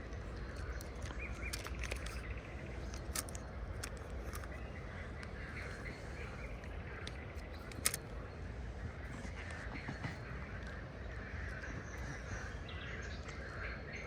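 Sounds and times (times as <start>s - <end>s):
birds calling: 0.0s - 14.0s
sharp clicks: 0.1s - 5.3s, 6.6s - 8.1s.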